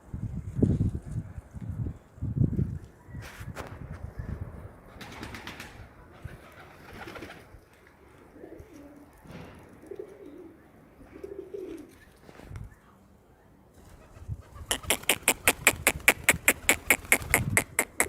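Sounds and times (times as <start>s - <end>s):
pigeons cooing: 8.3s - 9.2s, 9.8s - 12.1s, 14.0s - 18.0s.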